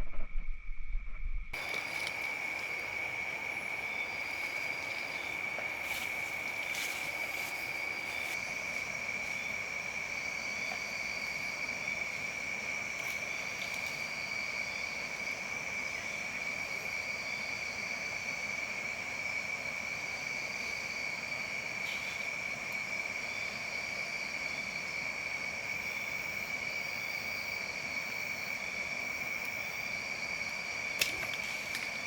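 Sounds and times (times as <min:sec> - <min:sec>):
soft hiss: 0:01.6 - 0:15.5
insect chorus trilling: 0:01.6 - 0:32.0.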